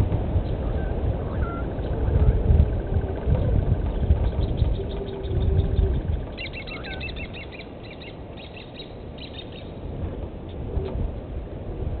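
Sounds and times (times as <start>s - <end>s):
steady low rumble: 0.0s - 12.0s
songbird chirping: 3.9s - 9.8s.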